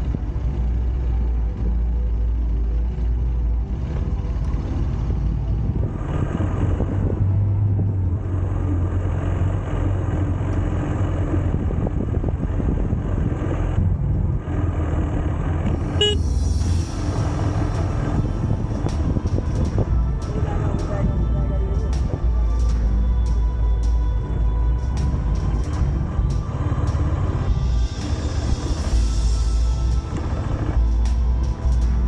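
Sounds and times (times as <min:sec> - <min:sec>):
motorcycle engine running: 0:00.0 - 0:32.0
wind rushing over microphone: 0:03.8 - 0:32.0
vehicle horn toot: 0:16.0 - 0:16.3.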